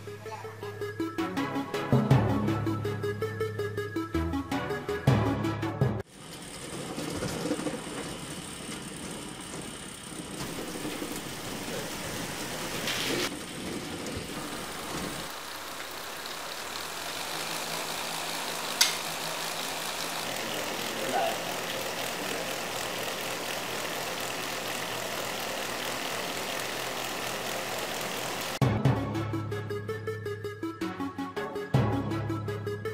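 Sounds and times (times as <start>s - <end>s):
small electric motor running: 6.1s - 28.6s.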